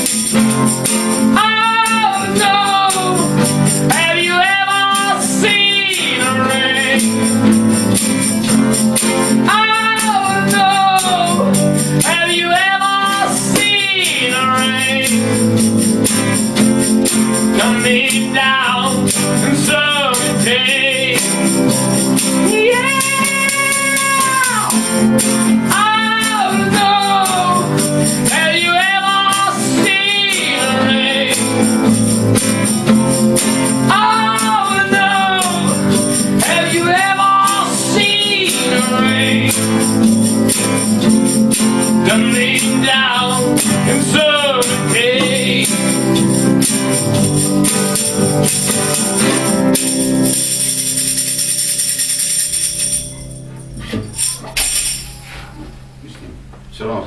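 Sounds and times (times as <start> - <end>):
tambourine: 0.0 - 55.4
person singing: 1.3 - 7.4, 9.3 - 15.4, 17.5 - 21.7, 22.4 - 32.9, 33.6 - 39.9, 42.0 - 46.1
rock band playing: 21.0 - 44.0, 44.8 - 55.4.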